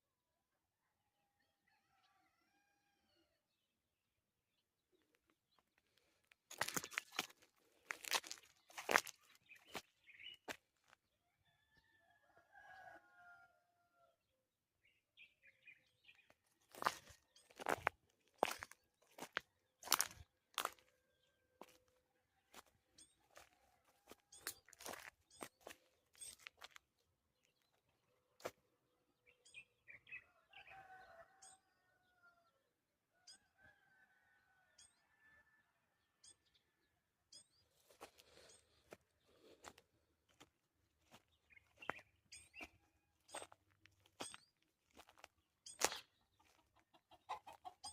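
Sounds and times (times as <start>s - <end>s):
small birds chirping: 4.9s - 11.0s, 15.2s - 28.5s, 36.2s - 47.9s
rooster crowing: 11.4s - 14.1s, 30.3s - 32.4s.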